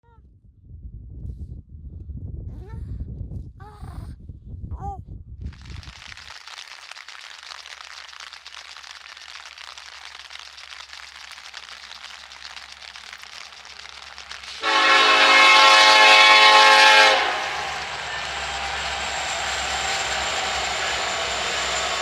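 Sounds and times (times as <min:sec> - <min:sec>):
train horn blast: 0:14.6 - 0:19.0
train rumbling: 0:14.6 - 0:22.0.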